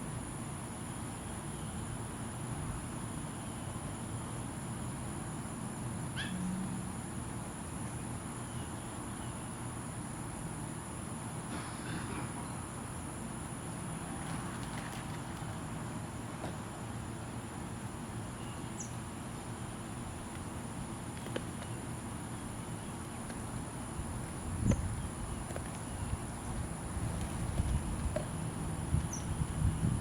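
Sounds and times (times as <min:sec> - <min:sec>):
insects droning: 0:00.0 - 0:30.0
bird chirp: 0:18.4 - 0:19.0, 0:29.0 - 0:29.4.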